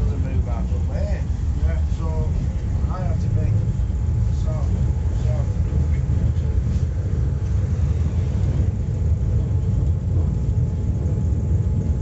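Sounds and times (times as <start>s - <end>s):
tram rumbling along track: 0.0s - 12.0s.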